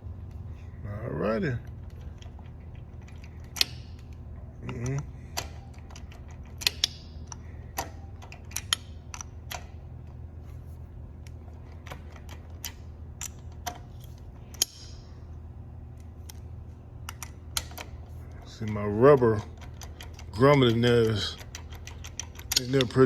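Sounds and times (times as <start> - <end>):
steady low hum: 0.0 - 23.0
metal tools clicking and clinking: 17.1 - 23.0.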